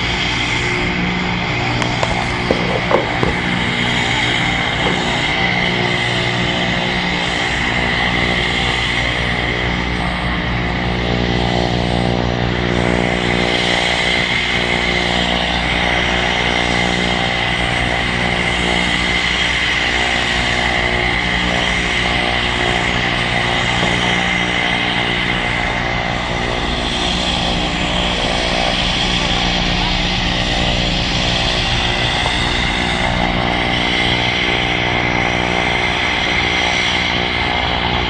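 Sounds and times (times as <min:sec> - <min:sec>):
turbine aircraft engine whining: 0:00.0 - 0:38.0.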